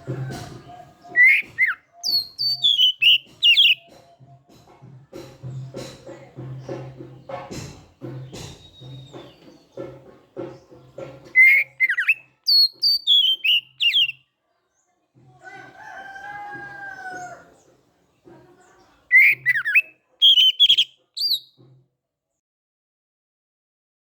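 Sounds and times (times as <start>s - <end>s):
rooster crowing: 0.0s - 2.2s, 15.4s - 17.6s
bird whistled song: 0.0s - 4.0s, 8.2s - 9.9s, 10.5s - 14.2s, 19.1s - 21.6s.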